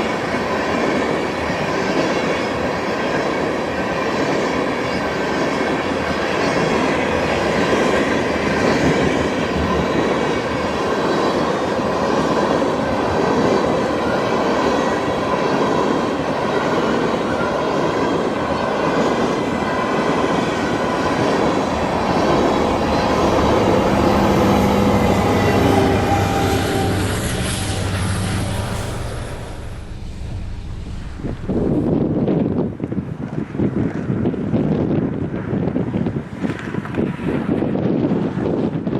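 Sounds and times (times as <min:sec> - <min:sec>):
freight cars rolling on rails: 0:00.0 - 0:34.4
thin squealing tones: 0:16.8 - 0:32.0.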